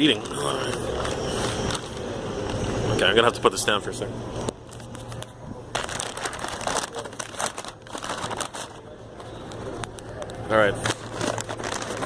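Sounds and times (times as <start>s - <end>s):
paper bag crinkling: 4.7s - 12.0s.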